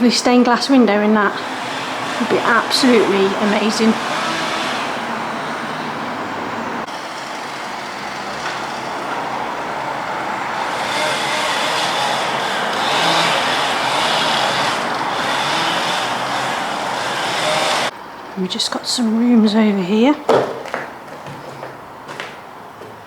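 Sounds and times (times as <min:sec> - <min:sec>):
road traffic noise: 0:00.0 - 0:23.0.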